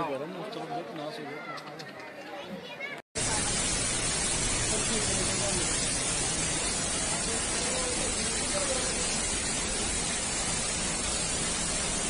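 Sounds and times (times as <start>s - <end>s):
heavy rain hissing: 3.2s - 12.0s.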